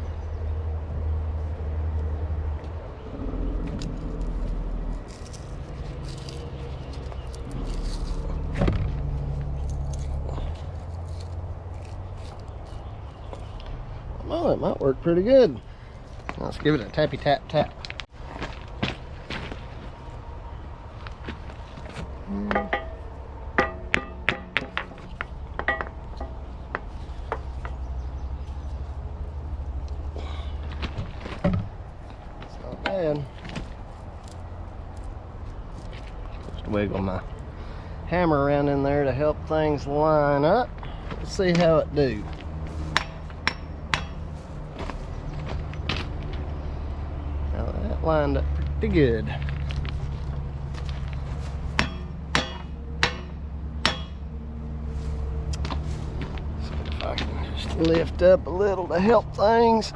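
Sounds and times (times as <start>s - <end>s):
steady low hum: 0.7s - 39.2s
hammer striking metal: 22.5s - 25.0s, 25.6s - 26.4s, 42.9s - 44.3s, 51.8s - 54.2s
sharp metal clunk: 22.5s - 26.4s, 51.8s - 54.2s.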